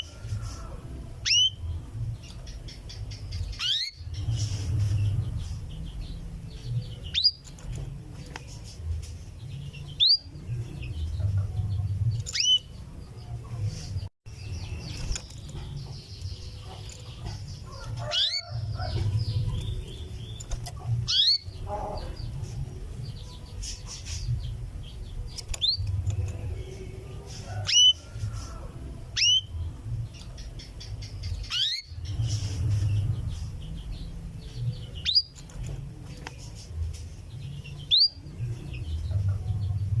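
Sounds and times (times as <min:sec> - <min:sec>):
canary call notes: 0:01.2 - 0:01.7, 0:02.9 - 0:04.1, 0:21.0 - 0:22.2, 0:29.2 - 0:29.6.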